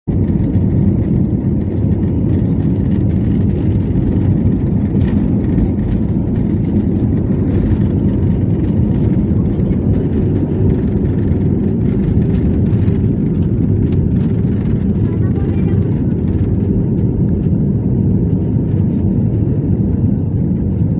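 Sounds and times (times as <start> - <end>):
aeroplane engines rumbling: 0.1 - 20.9.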